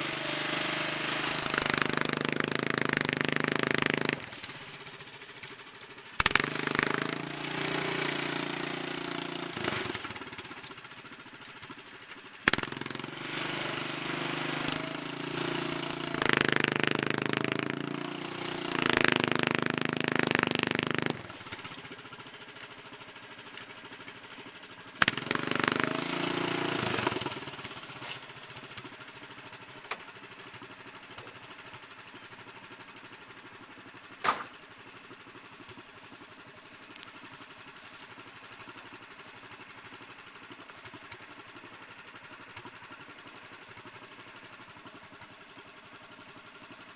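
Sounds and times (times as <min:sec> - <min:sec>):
small engine revving hard: 0:00.0 - 0:05.0, 0:06.2 - 0:10.7, 0:12.5 - 0:21.9, 0:25.0 - 0:28.4
sharp clunk: 0:34.2 - 0:34.6.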